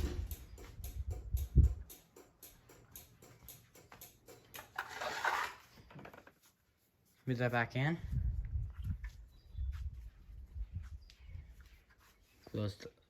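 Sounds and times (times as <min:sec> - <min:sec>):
garage door thud: 0:00.0 - 0:02.9
rapid ticking: 0:00.0 - 0:04.9.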